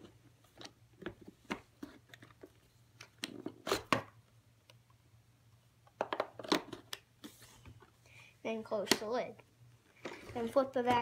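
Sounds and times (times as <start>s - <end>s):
plastic clicks and knocks: 5.9s - 7.0s.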